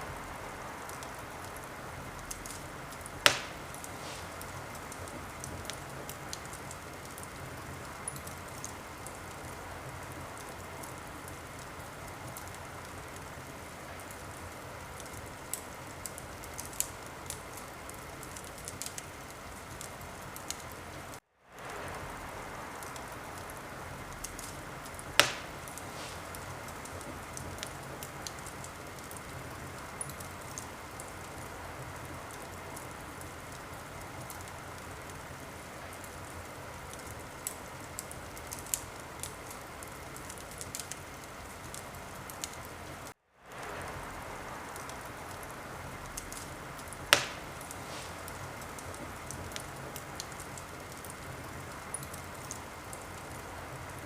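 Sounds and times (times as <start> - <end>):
wood fire crackling: 0.0 - 54.0
loud sharp pop: 3.2 - 4.4, 25.2 - 26.4, 47.1 - 48.2.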